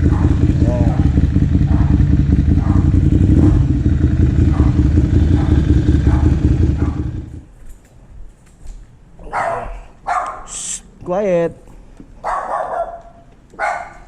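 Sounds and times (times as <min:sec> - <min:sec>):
motorcycle engine running loud: 0:00.0 - 0:07.5.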